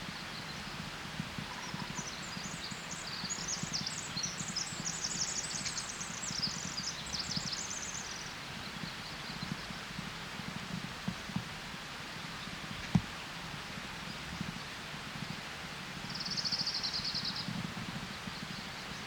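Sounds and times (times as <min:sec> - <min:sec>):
songbird chirps and trills: 0:01.5 - 0:09.9.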